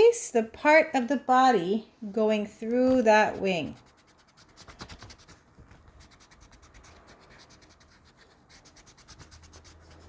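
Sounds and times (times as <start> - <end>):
eraser rubbing on paper: 3.6 - 10.0.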